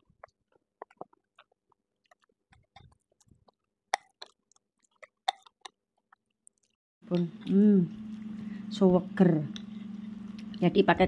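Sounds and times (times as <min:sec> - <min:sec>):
people chewing: 0:00.0 - 0:07.2, 0:07.9 - 0:08.6.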